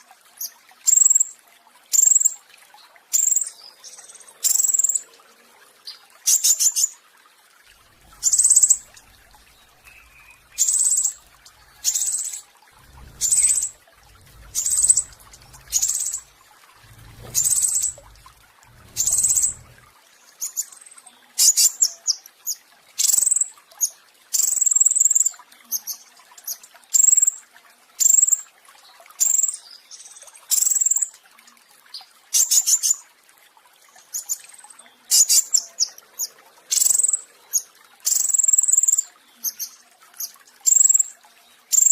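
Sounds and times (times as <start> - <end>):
songbird rattling trills: 7.7 - 19.9.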